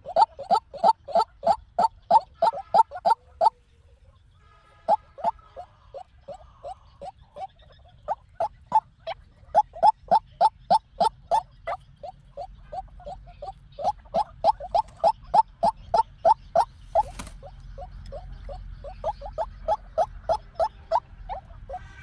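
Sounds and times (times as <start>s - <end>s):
waterhen calling: 0.0s - 3.6s, 4.7s - 22.0s.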